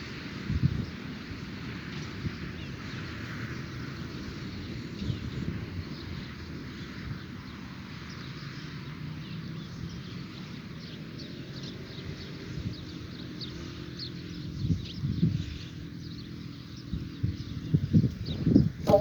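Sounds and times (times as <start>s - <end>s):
birds chirping: 18.6s - 19.0s.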